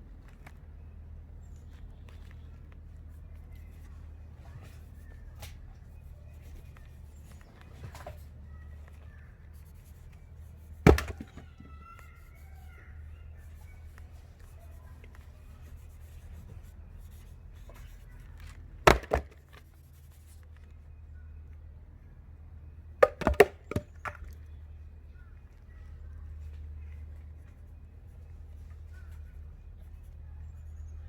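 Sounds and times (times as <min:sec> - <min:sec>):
firewood knocking: 0:10.8 - 0:11.7, 0:18.8 - 0:19.6, 0:23.0 - 0:24.3.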